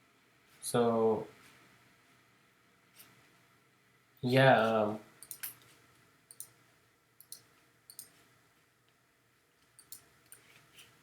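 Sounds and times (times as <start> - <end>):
faint computer mouse clicks: 6.3 - 6.6, 7.2 - 8.2, 9.8 - 10.5.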